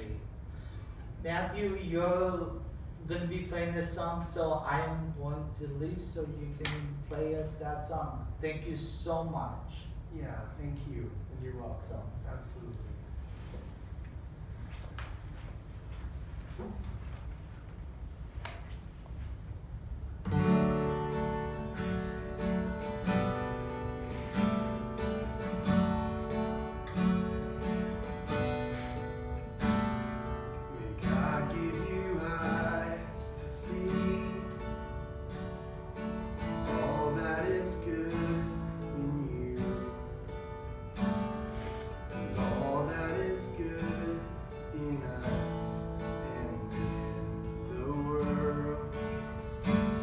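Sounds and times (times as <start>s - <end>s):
acoustic guitar strumming chords: 20.2s - 50.0s.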